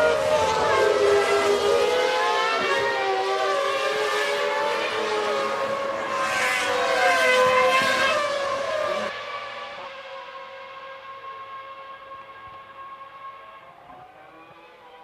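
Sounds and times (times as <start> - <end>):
racing car engines at high revs: 0.0 - 15.0.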